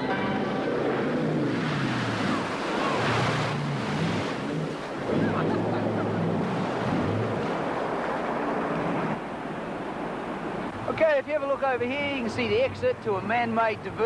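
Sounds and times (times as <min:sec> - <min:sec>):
wind buffeting microphone: 0:00.0 - 0:13.0
jet boat engine: 0:00.0 - 0:14.0
rushing water spray: 0:00.9 - 0:05.7.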